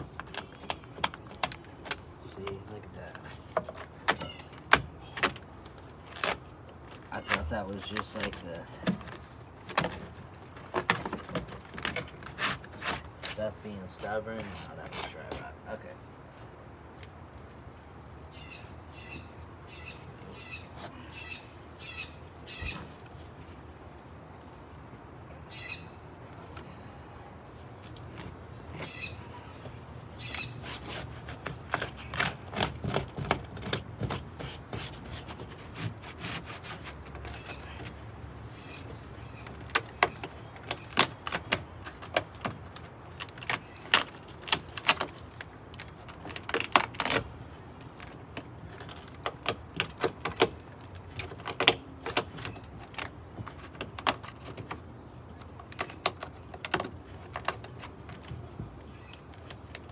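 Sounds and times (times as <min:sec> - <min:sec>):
dry rotted wood breaking: 0:00.0 - 0:15.5, 0:30.2 - 0:38.0, 0:38.6 - 0:58.2.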